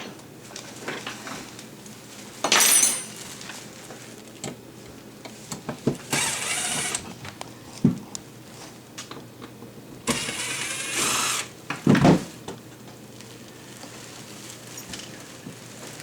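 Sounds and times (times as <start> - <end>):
screw gun running: 6.1 - 7.1, 10.1 - 11.6.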